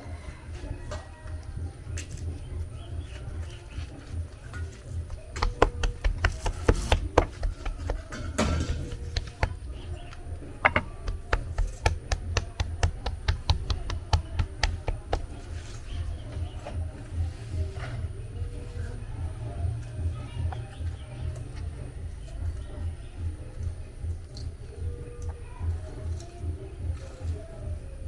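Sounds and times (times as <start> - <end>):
kitchen utensils tapping: 5.1 - 9.8, 10.6 - 15.3.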